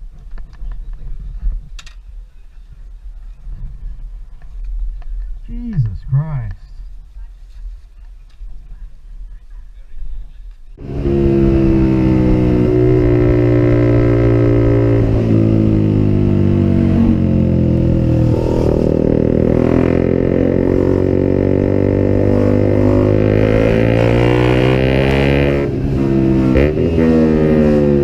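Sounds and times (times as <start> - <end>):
motorcycle engine running: 10.8 - 28.0.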